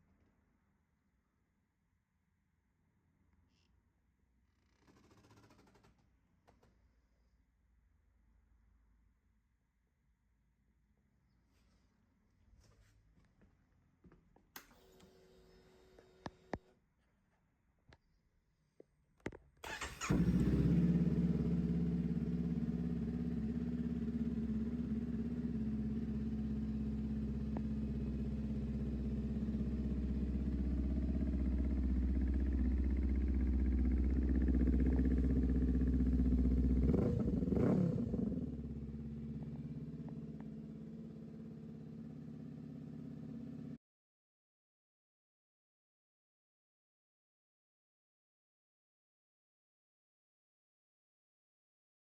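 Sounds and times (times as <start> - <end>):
motorcycle engine rev: 19.6 - 43.8
motorcycle engine starting and idling: 19.6 - 43.8.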